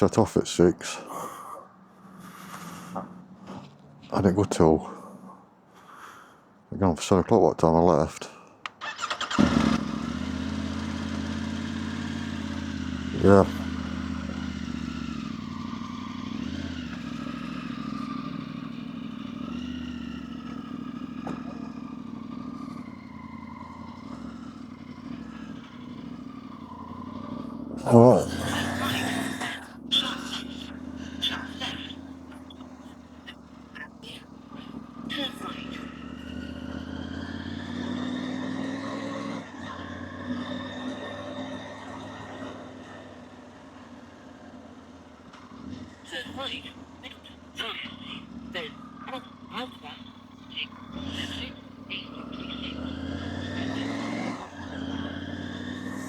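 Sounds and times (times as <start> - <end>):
motorcycle engine running: 8.9 - 56.0.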